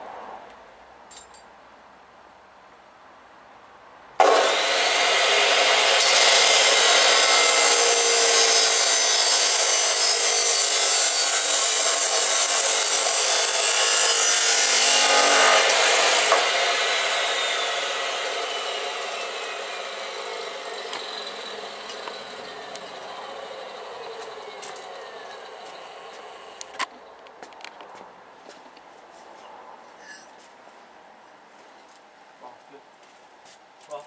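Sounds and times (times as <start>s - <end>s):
electric grinder cutting steel: 4.2s - 26.7s.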